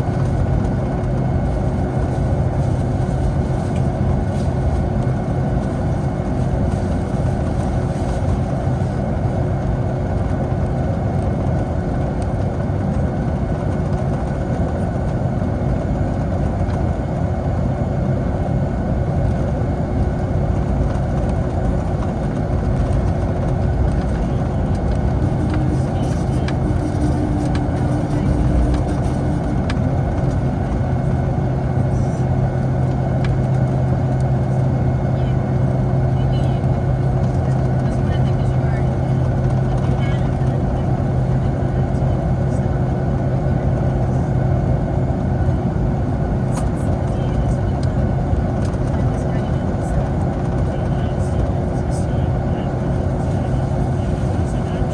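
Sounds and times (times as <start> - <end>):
jet engine cabin hum: 0.0 - 54.9.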